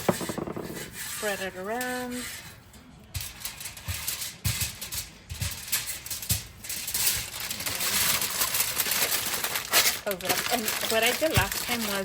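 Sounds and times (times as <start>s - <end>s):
aluminum foil crinkling: 3.1s - 12.0s.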